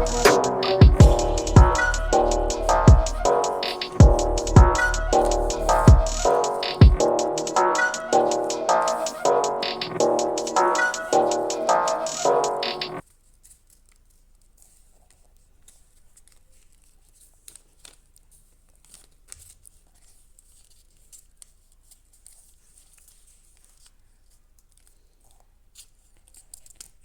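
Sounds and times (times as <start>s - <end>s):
electronic music: 0.0s - 13.0s
paper crinkling and rustling: 13.0s - 27.0s.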